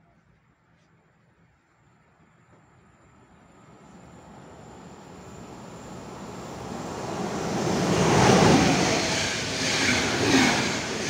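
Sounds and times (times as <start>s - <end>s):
electric train passing at speed: 2.7s - 11.0s.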